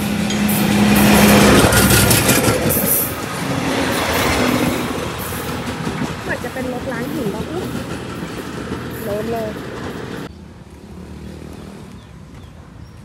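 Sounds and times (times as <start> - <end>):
train cars rattling on track: 0.0 - 10.3
train passing on rails: 0.0 - 13.0.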